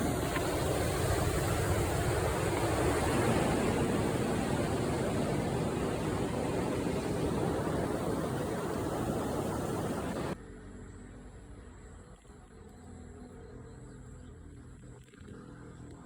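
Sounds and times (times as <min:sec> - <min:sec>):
steady rushing noise: 0:00.0 - 0:10.4.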